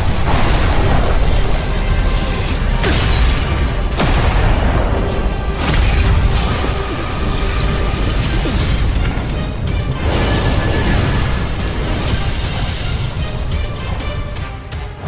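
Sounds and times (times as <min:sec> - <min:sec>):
booming explosions: 0:00.0 - 0:13.6
battle soundtrack music: 0:00.0 - 0:15.0.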